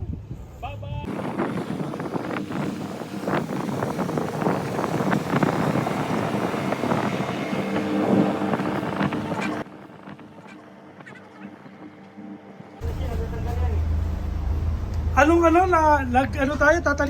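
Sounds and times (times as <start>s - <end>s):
rushing wind: 0.0s - 13.1s
water rushing: 1.1s - 9.7s
boat engine running: 1.1s - 17.0s.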